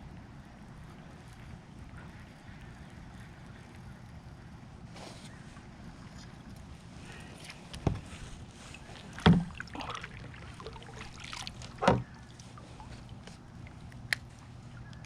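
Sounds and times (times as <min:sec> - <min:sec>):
low background noise: 0:00.0 - 0:15.0
knocks on kayak: 0:09.2 - 0:09.6, 0:11.8 - 0:12.1.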